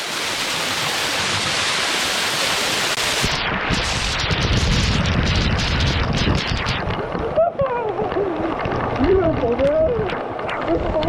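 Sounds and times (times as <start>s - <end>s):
waterfall rushing: 0.0s - 4.4s.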